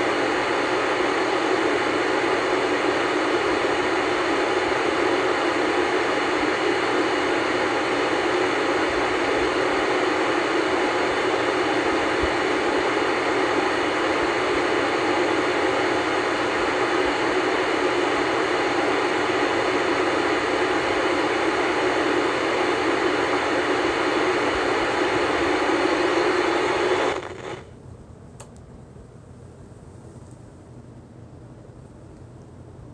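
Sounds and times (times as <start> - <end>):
television static hiss: 0.0 - 28.4
television switching off: 0.0 - 28.6.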